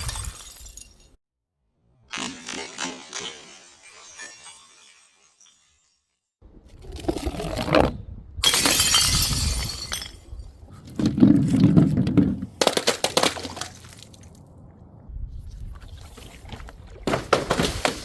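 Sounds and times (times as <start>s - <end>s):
glass shattering: 0.0s - 1.2s, 8.4s - 10.3s.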